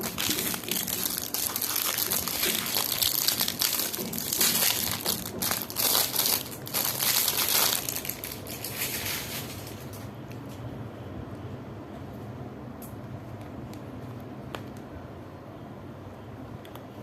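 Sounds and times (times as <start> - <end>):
packaging crinkling: 0.0 - 10.1.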